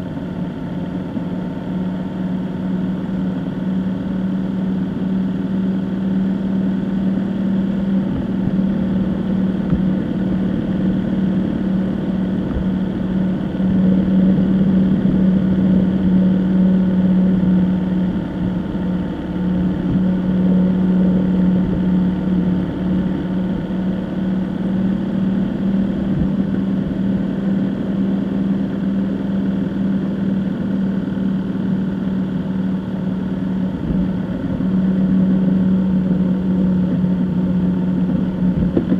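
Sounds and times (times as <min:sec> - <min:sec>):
road noise: 0:00.0 - 0:38.9
vehicle engine droning: 0:00.0 - 0:38.9.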